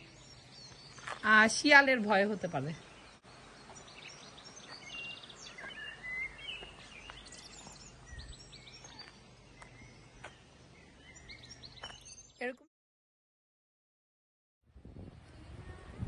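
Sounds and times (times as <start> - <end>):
small birds chirping: 0.0 - 12.6
faint outdoor background noise: 0.0 - 12.7, 14.7 - 16.0.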